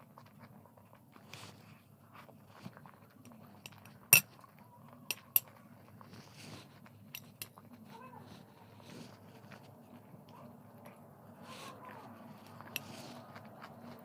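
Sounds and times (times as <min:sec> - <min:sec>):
cutlery clinking against a dish: 0:05.1 - 0:05.5, 0:07.1 - 0:07.6.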